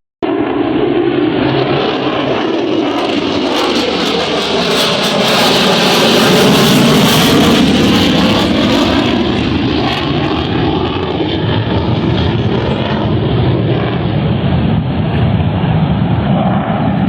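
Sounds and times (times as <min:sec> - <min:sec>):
plane passing: 0:00.2 - 0:17.0.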